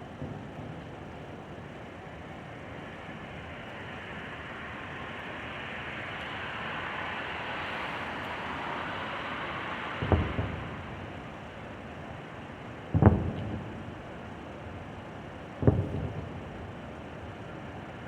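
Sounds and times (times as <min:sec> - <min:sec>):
fireworks crackling: 0:00.0 - 0:18.0.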